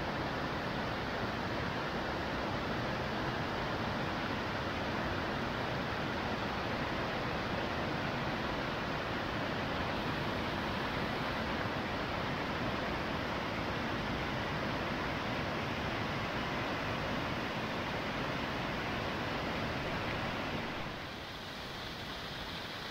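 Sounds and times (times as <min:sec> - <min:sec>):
stream and waterfalls rushing: 0:00.0 - 0:22.9.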